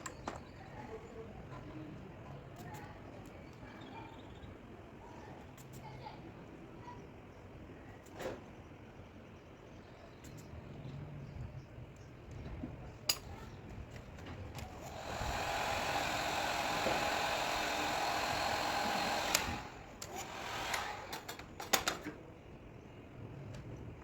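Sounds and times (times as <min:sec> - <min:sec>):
electric blower motor whirring: 0:14.6 - 0:21.8.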